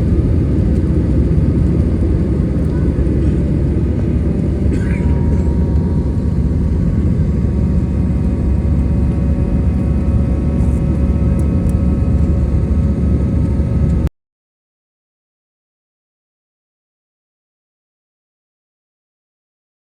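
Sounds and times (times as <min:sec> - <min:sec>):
jet engine cabin rumble: 0:00.0 - 0:14.1
steady engine tones: 0:00.0 - 0:14.1.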